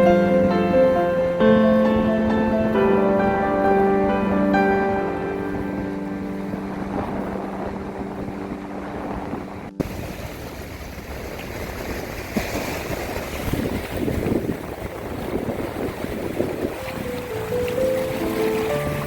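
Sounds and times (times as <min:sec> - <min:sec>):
held musical chord: 0:00.0 - 0:09.8, 0:16.8 - 0:19.0
waves breaking on a beach: 0:00.0 - 0:19.0
wind buffeting microphone: 0:00.0 - 0:19.0.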